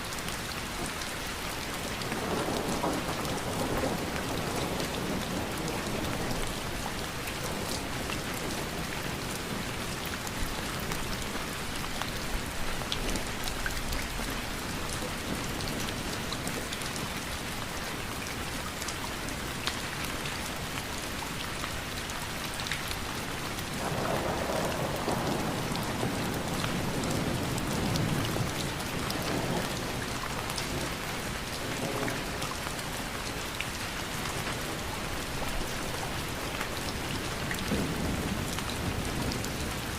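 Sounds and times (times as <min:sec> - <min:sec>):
steady rain hissing: 0:00.0 - 0:39.9
thunder rumbling: 0:23.8 - 0:30.0.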